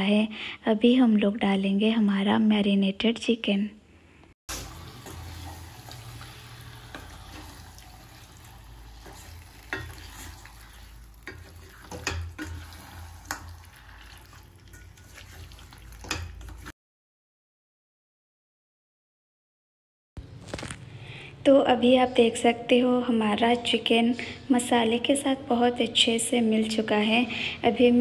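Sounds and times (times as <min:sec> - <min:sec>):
chicken sizzling in a pan: 0:04.5 - 0:16.7
spatula scraping and knocking on pan: 0:04.5 - 0:16.7.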